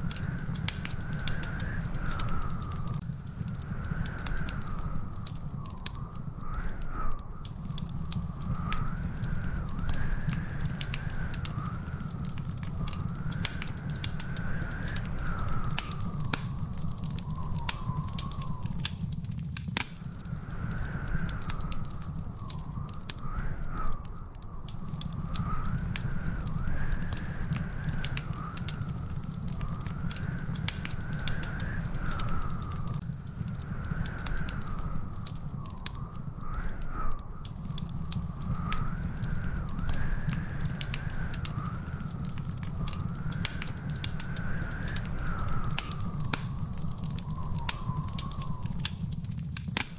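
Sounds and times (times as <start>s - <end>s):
wood fire crackling and popping: 0.0s - 49.9s
wavering whistle-like tone: 38.4s - 49.1s.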